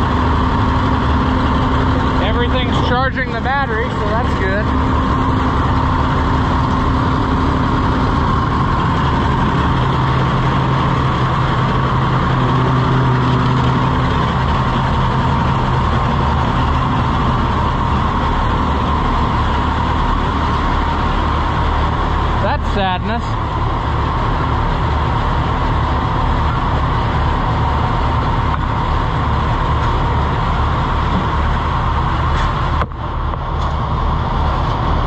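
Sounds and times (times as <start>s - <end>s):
tractor engine idling: 0.0s - 35.0s.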